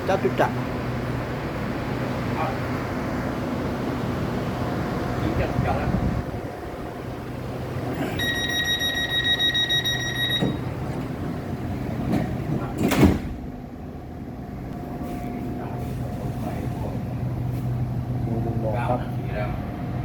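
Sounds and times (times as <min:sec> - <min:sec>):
train humming: 0:00.0 - 0:20.0
door-closing warning buzz: 0:07.9 - 0:11.4, 0:12.0 - 0:13.7
sliding doors thudding shut: 0:10.2 - 0:13.8.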